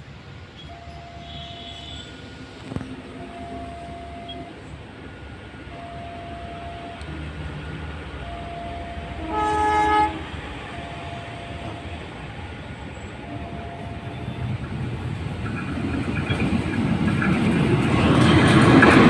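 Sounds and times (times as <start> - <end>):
train rumbling: 0.0 - 19.0
steady tone on and off: 3.1 - 9.2
train horn blast: 9.0 - 12.2.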